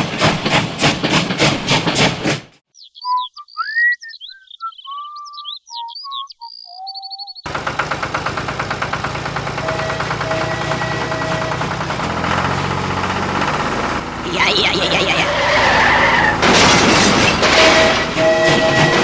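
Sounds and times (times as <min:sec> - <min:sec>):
whistled chirping tones: 0:02.8 - 0:07.4
fast pulsing engine-like rattle: 0:07.5 - 0:19.0.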